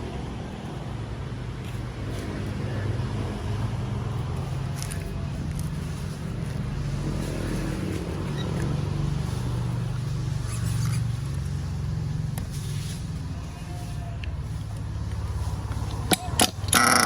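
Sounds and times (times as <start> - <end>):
small nitro engine buzzing: 16.0 - 17.0.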